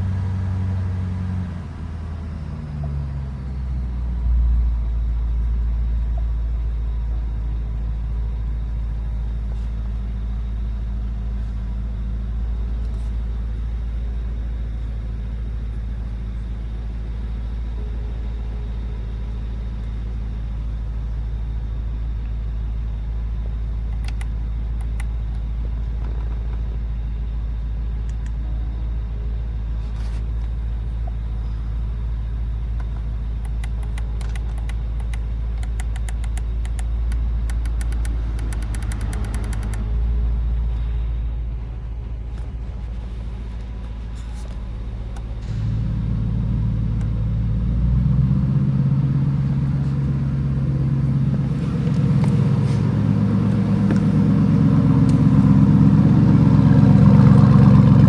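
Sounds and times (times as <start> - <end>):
car engine idling: 0.0 - 58.0
faint clicks: 32.7 - 39.9.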